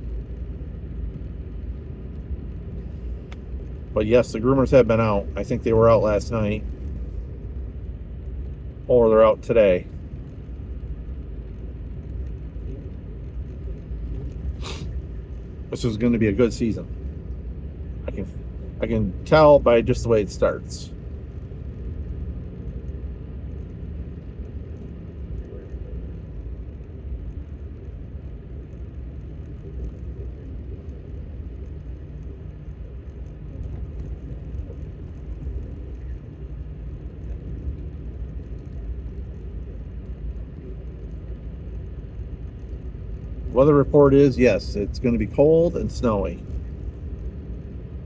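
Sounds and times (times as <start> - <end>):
truck engine rumble from inside: 0.0 - 48.0
tyre noise on snow: 14.6 - 14.9.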